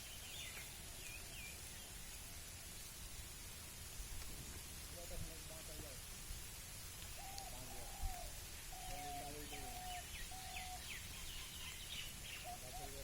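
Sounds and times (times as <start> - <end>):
bird hooting: 7.2 - 11.8, 12.4 - 13.0
bird high chirps: 8.8 - 13.0.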